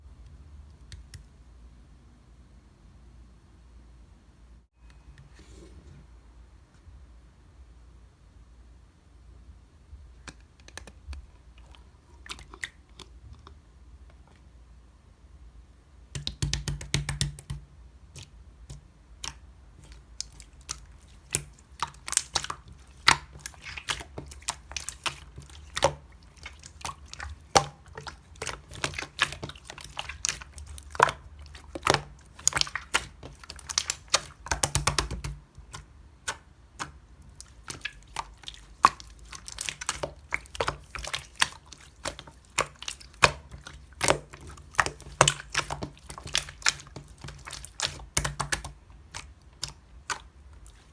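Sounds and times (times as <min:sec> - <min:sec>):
slime squeezed by hand clicking: 0:18.2 - 0:50.3.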